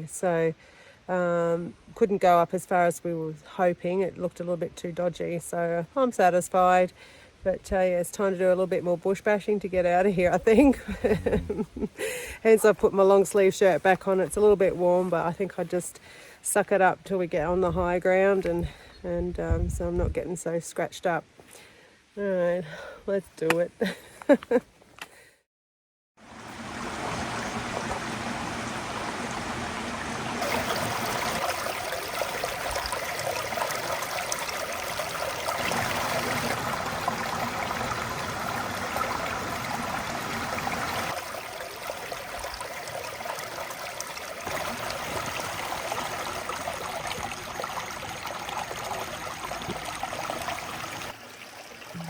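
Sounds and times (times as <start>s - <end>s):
creek water rushing: 26.2s - 52.0s.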